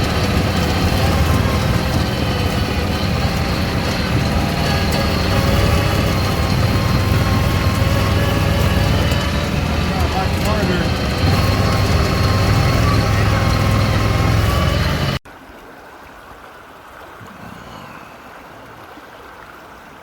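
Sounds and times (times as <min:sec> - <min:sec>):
engine low rumble: 0:00.0 - 0:15.2.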